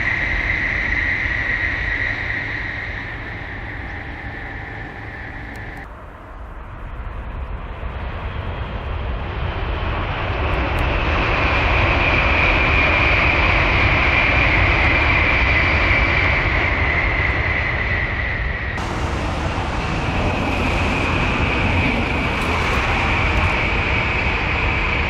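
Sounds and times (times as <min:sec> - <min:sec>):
bullet train passing: 0:00.0 - 0:07.0, 0:18.6 - 0:25.0
high whine: 0:00.0 - 0:07.9, 0:18.2 - 0:25.0.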